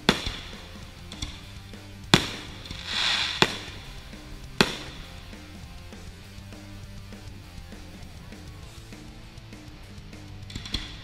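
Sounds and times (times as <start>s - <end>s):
firework bangs: 2.2s - 5.1s
short hiss: 2.6s - 4.0s.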